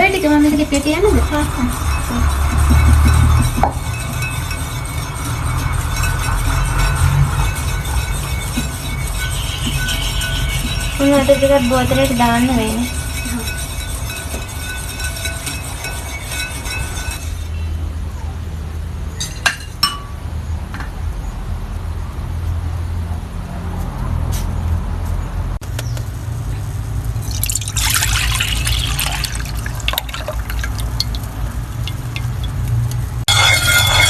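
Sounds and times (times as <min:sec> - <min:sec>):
glass clinks: 0:19.2 - 0:20.2
liquid pouring into glass bottle: 0:27.2 - 0:32.9.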